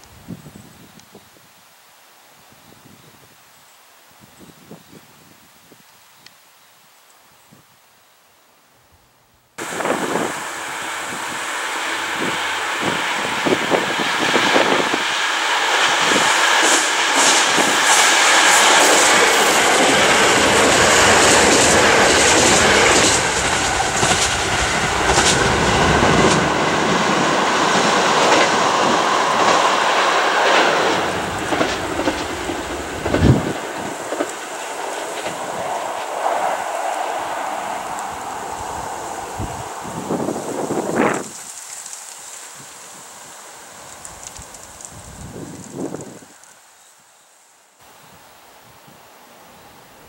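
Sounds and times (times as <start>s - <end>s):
wheels clacking over rail joints: 9.6s - 46.5s
diesel train passing: 9.6s - 46.7s.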